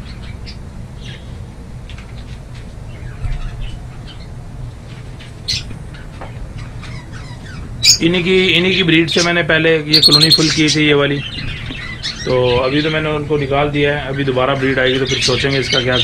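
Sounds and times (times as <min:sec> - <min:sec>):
budgerigars chirping: 0:10.0 - 0:10.8.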